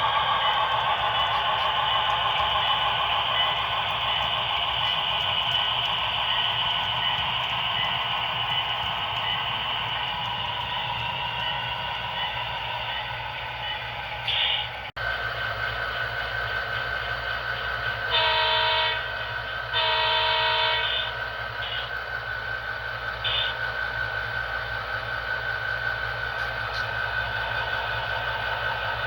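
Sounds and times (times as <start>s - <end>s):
steady engine hum: 0.0s - 29.0s
model locomotive horn blasts: 14.2s - 14.8s, 18.1s - 19.1s, 19.7s - 21.9s.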